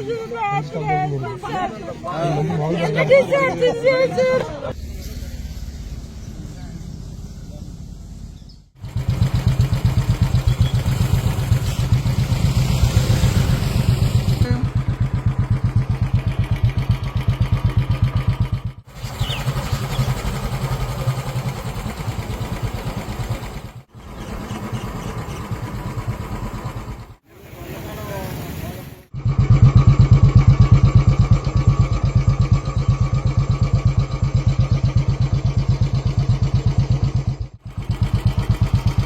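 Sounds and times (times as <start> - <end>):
small engine running: 2.2 - 39.0.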